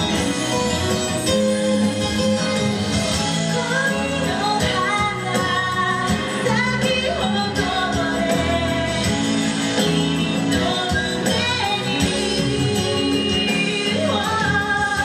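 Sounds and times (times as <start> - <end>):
live pop song singing: 0.0 - 15.0.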